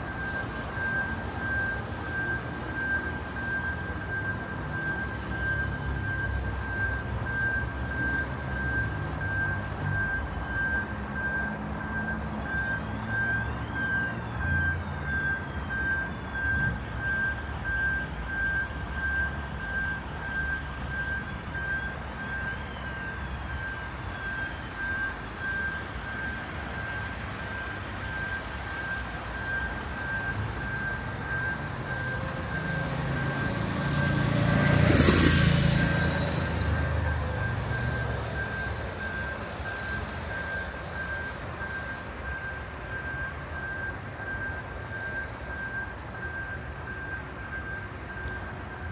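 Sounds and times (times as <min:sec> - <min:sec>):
crossing warning signal beeping: 0:00.0 - 0:48.9
road traffic running low: 0:00.0 - 0:48.9.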